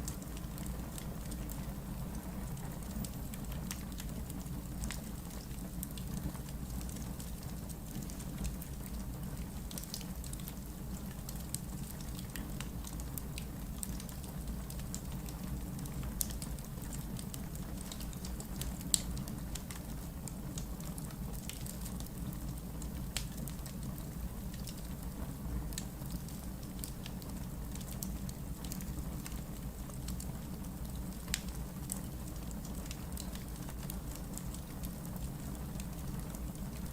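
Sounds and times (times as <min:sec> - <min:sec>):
rumble of fire flames: 0:00.0 - 0:36.9
logs crackling and popping: 0:14.9 - 0:25.1, 0:25.7 - 0:36.9.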